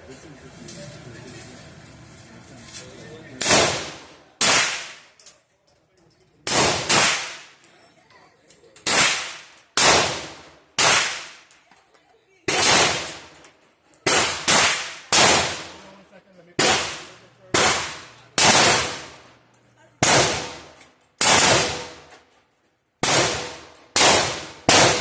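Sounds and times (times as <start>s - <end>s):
gunshots: 3.4s - 5.0s, 6.4s - 7.6s, 8.8s - 11.5s, 12.5s - 13.3s, 14.0s - 15.8s, 16.6s - 19.2s, 20.0s - 22.1s, 23.0s - 25.0s.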